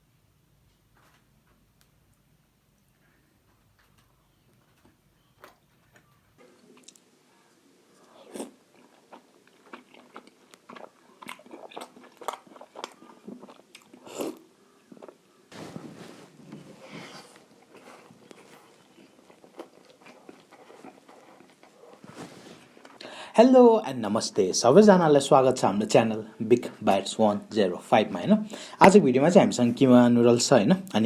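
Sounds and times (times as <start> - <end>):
chewing and crunching: 3.8 - 7.1, 7.9 - 15.3, 17.2 - 23.0.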